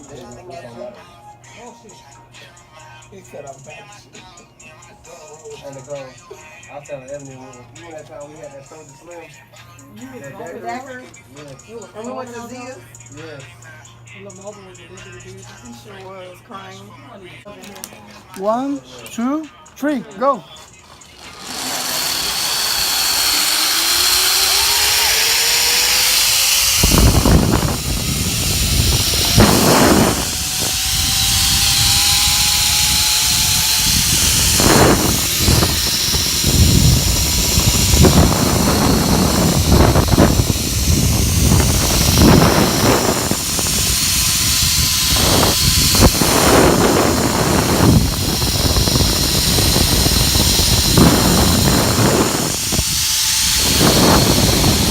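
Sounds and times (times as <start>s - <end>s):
zip-line trolley whining on cable: 20.8s - 54.9s
wind buffeting microphone: 24.0s - 54.9s.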